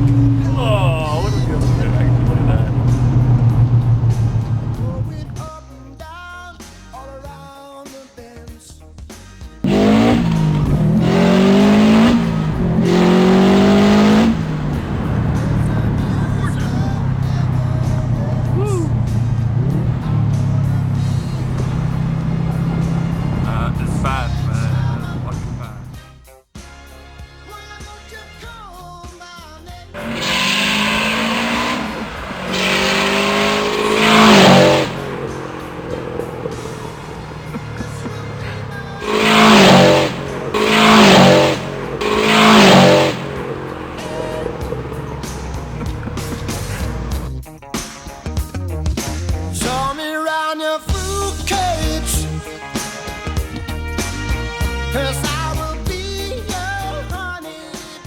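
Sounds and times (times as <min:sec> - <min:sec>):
turbocharged car engine accelerating: 0:00.0 - 0:05.6, 0:09.6 - 0:26.0, 0:30.0 - 0:47.4.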